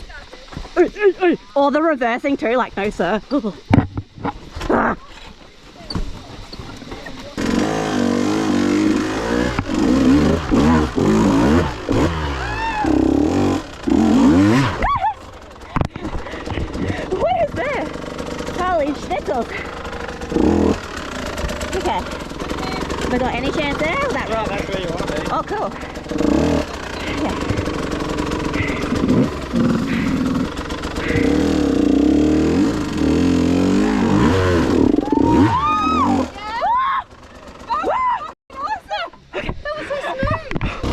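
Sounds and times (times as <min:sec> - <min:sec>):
dirt bike engine revving: 0:06.4 - 0:38.3, 0:40.6 - 0:40.9.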